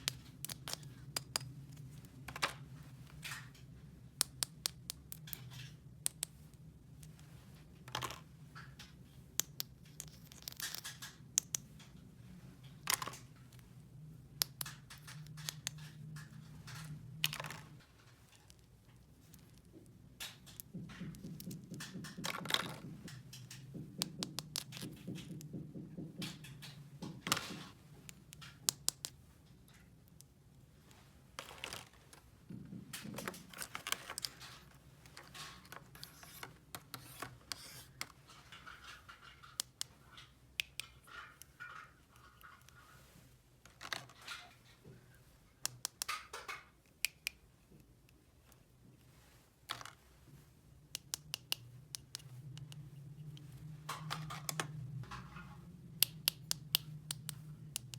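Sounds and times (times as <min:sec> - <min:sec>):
plastic toy pieces clicking: 0:00.0 - 0:01.5, 0:09.4 - 0:11.6, 0:28.1 - 0:29.2, 0:38.8 - 0:39.9.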